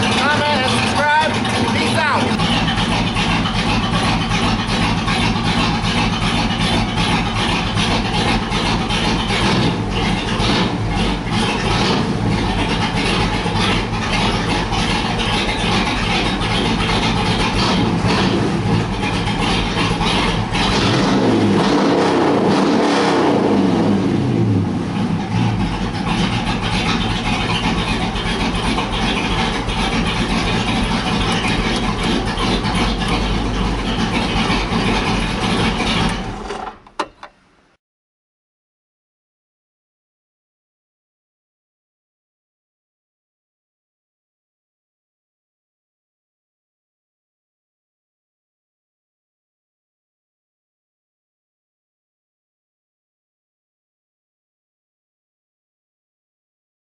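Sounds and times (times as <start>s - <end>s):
car engine idling and revving: 0.0s - 37.5s.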